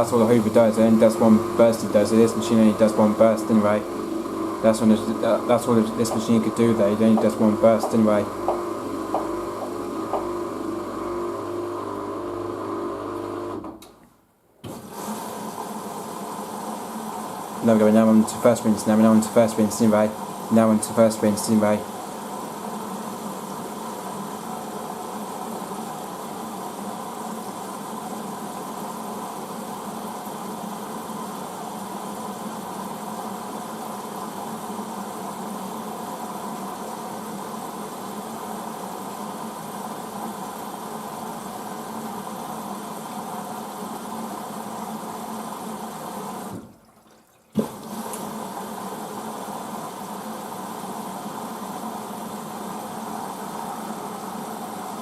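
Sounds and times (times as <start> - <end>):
washing machine filling with water: 0.0 - 13.8, 14.7 - 55.0
washing machine click: 5.7 - 10.4.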